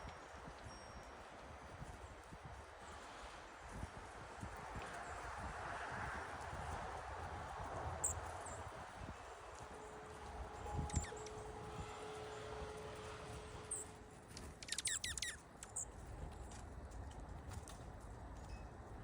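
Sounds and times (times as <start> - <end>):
small birds chirping: 10.8 - 11.4, 14.6 - 15.9.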